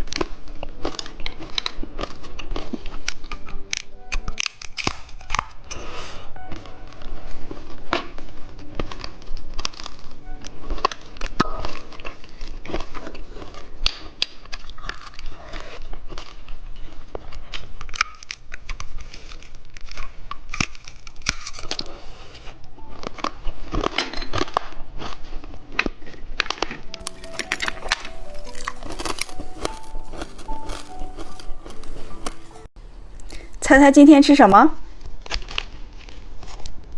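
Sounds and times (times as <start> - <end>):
plastic wrapper crinkling and tearing: 27.0 - 32.8.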